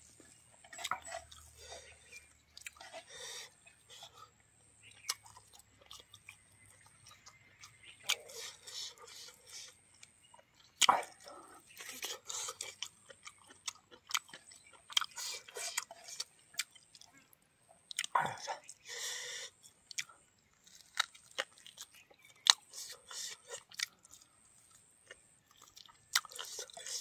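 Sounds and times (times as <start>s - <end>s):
wet chewing smacks: 0.2s - 4.2s, 17.9s - 27.0s.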